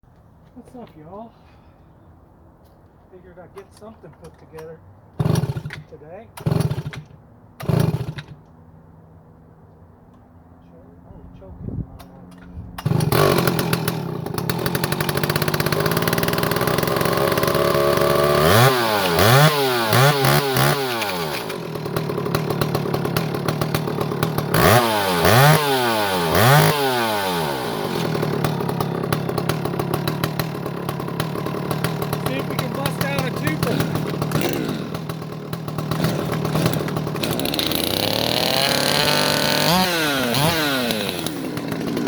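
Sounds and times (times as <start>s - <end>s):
chainsaw starting and revving: 5.2s - 8.5s, 12.8s - 42.0s.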